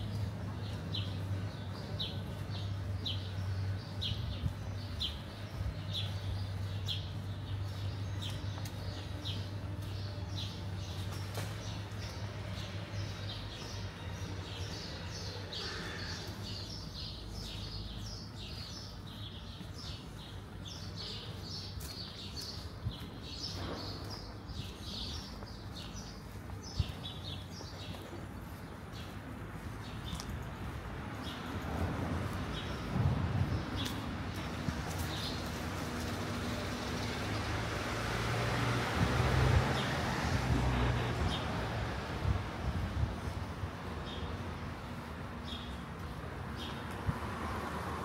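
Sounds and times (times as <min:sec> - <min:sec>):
small birds chirping: 0:00.0 - 0:37.6
city background hum: 0:00.0 - 0:48.0.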